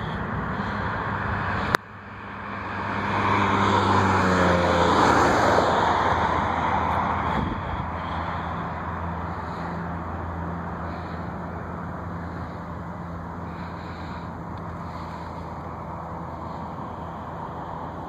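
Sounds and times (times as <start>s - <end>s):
vehicle passing by: 0.0s - 18.0s
steady low hum: 6.1s - 18.0s.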